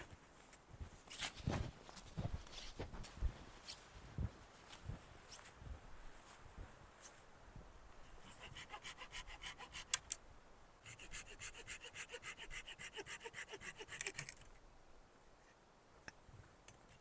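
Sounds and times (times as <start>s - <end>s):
hand saw cutting wood: 8.2s - 10.2s, 10.9s - 14.4s.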